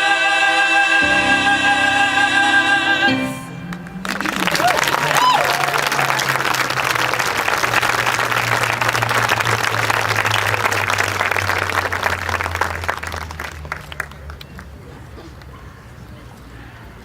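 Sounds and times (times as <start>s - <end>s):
low held instrumental note: 1.0s - 5.2s
audience applauding: 3.1s - 14.8s
person whooping: 4.0s - 6.2s.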